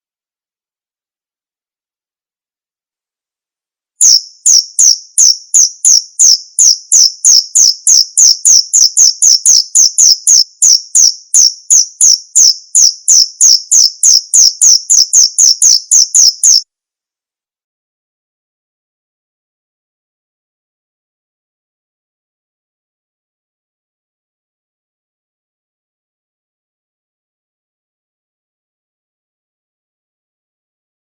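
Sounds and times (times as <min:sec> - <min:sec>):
cricket chirping: 0:04.0 - 0:16.6.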